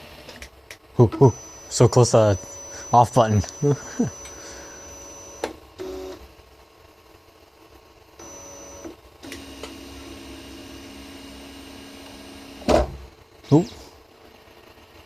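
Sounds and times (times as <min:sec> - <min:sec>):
stepper motors whining: 0:01.0 - 0:06.2, 0:08.2 - 0:12.7.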